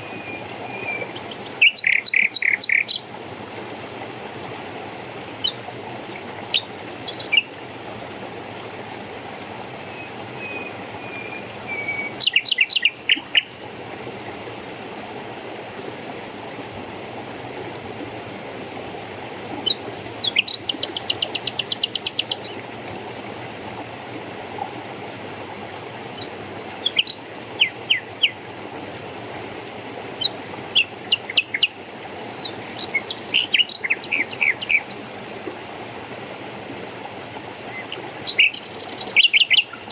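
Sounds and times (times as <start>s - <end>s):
songbirds chirping and trilling: 0.0s - 3.1s, 10.0s - 13.6s, 19.6s - 22.6s, 30.2s - 35.1s, 37.8s - 39.9s
flowing water rushing: 0.0s - 39.9s.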